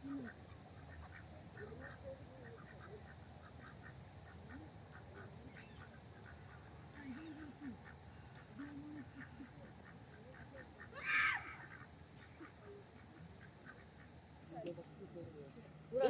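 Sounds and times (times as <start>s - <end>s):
ducks quacking: 0.0s - 16.0s
faint regular chirping: 14.1s - 16.0s.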